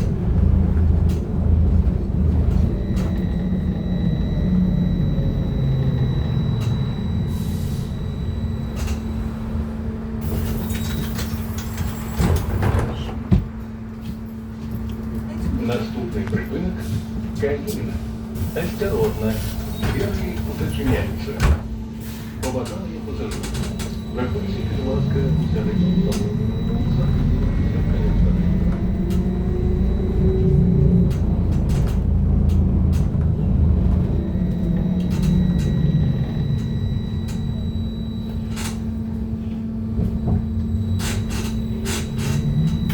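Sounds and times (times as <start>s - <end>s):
low rumble with electric hum: 0.0s - 7.2s
trolleybus ride rumble: 0.0s - 42.9s.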